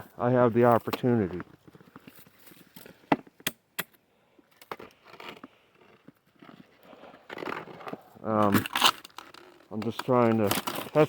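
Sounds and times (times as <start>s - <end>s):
ice cracking: 4.8s - 11.0s.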